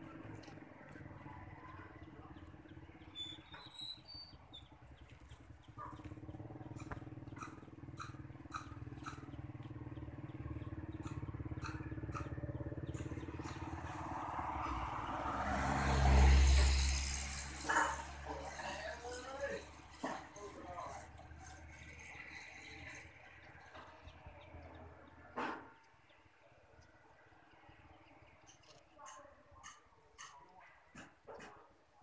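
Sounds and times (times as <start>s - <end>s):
small motorcycle engine running: 4.5s - 14.7s.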